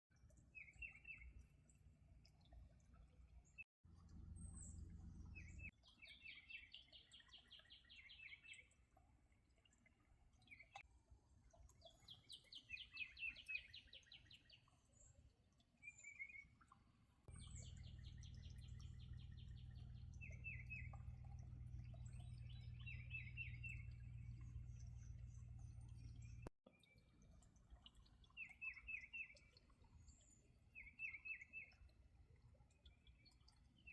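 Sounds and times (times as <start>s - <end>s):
low steady hum: 0.2s - 5.7s, 17.3s - 28.3s
songbird trilling: 22.5s - 23.9s.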